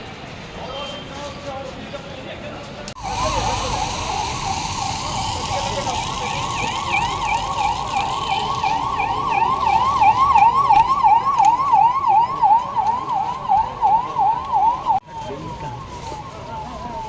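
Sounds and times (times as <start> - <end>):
electronic siren in a fast yelp: 3.0 - 15.4.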